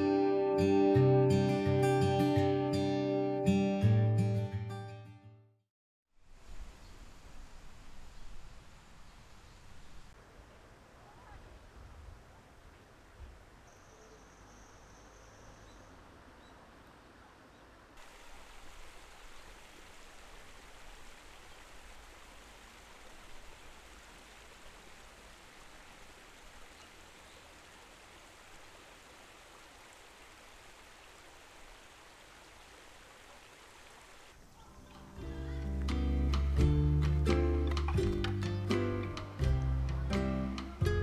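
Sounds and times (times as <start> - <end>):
stream flowing: 6.2 - 35.8.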